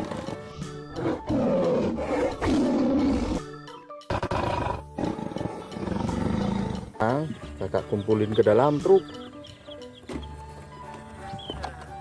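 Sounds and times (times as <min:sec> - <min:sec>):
background music: 0:00.0 - 0:12.0
lion roaring: 0:00.9 - 0:06.9.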